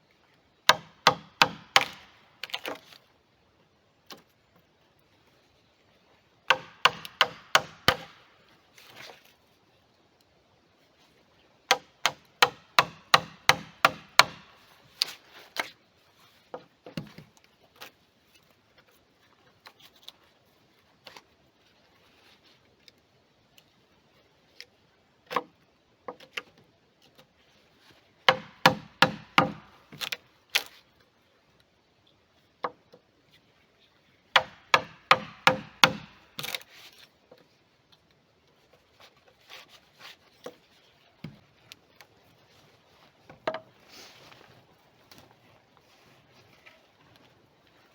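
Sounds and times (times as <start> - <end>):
hammer striking wood: 0.7 - 2.1, 6.5 - 8.2, 11.7 - 14.5, 28.3 - 29.7, 34.4 - 36.2.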